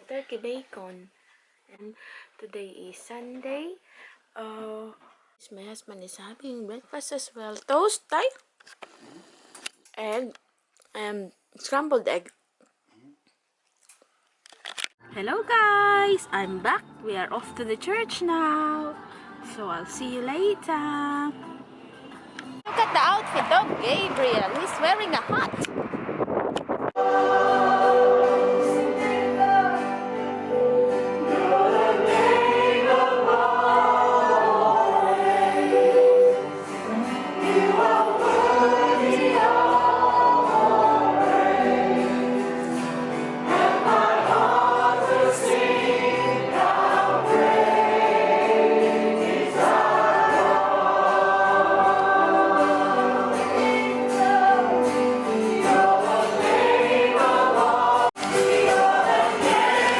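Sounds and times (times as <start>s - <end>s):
choir singing: 27.0s - 59.9s.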